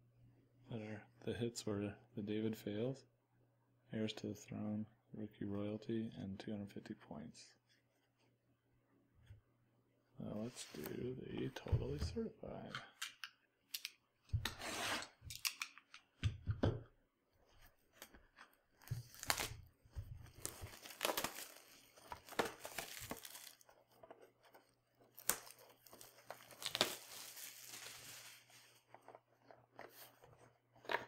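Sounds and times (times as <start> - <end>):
plastic shrink wrap tearing: 18.8 - 23.8, 25.1 - 28.6.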